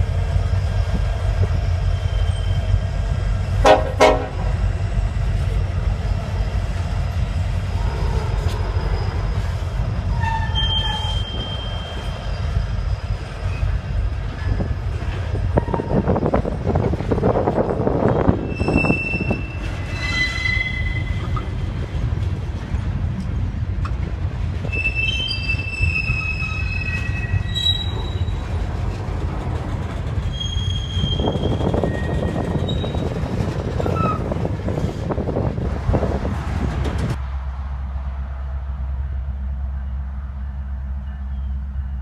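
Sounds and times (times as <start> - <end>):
freight train cars rolling: 0.0 - 42.0
wheel flanges squealing: 0.6 - 3.0, 7.6 - 16.6, 18.0 - 21.7, 24.6 - 35.1.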